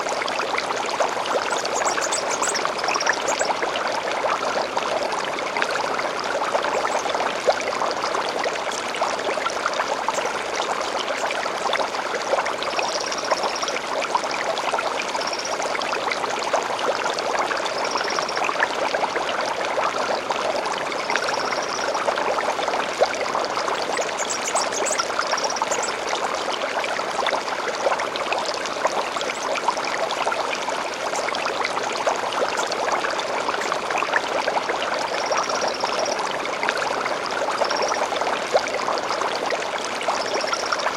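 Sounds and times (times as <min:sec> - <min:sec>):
stream flowing and trickling: 0:00.0 - 0:40.9
bird twittering: 0:01.4 - 0:03.6.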